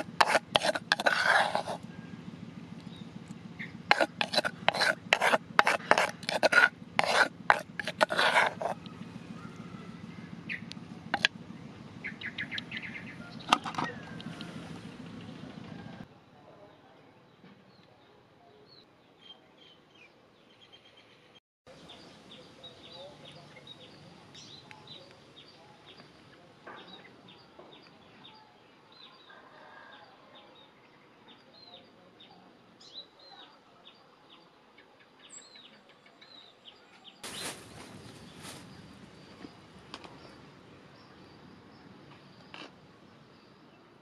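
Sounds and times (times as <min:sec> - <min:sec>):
small birds chirping: 0:02.8 - 0:15.8, 0:30.6 - 0:44.0.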